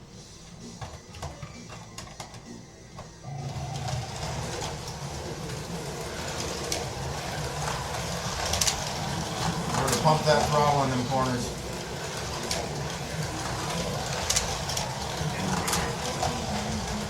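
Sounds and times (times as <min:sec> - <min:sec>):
slot cars buzzing on track: 0:03.2 - 0:17.0.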